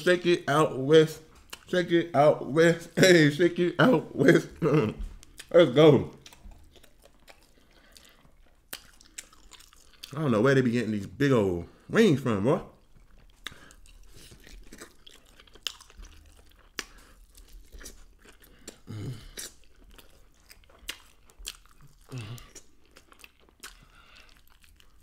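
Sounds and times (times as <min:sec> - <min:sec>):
chewing and crunching: 0:01.1 - 0:01.9, 0:04.3 - 0:11.1, 0:12.6 - 0:25.0
vocal sounds through full mouth: 0:18.5 - 0:19.6, 0:22.1 - 0:22.7.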